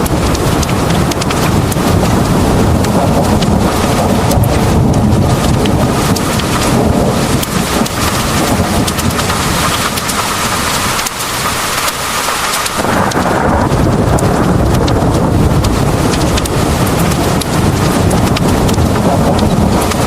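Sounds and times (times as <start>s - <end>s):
heavy rain pouring: 0.0s - 20.0s
low rolling thunder: 0.0s - 20.0s.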